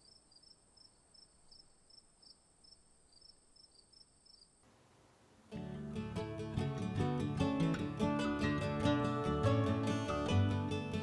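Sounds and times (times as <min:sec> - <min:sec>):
insect chirping trill: 0:00.0 - 0:04.7
acoustic guitar music: 0:05.5 - 0:11.0.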